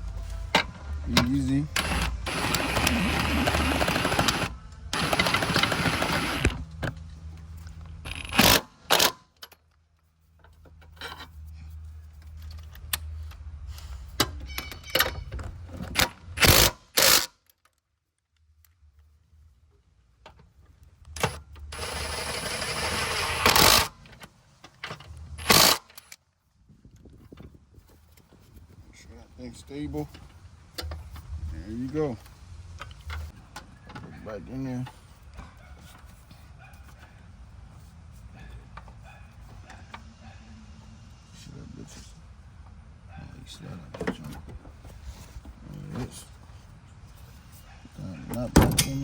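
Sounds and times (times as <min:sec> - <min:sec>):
metallic clanks and knocks: 0:14.2 - 0:16.0.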